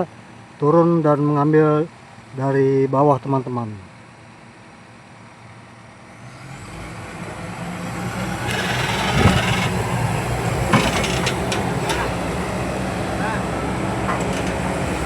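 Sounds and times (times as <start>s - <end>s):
large engine running: 8.0s - 15.0s
rattling and clanking: 8.5s - 13.2s, 14.0s - 15.0s.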